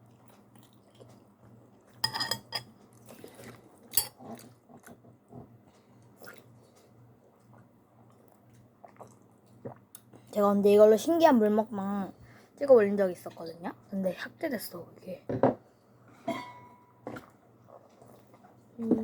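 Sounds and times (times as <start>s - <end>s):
mouth chewing noodles: 6.2s - 10.1s.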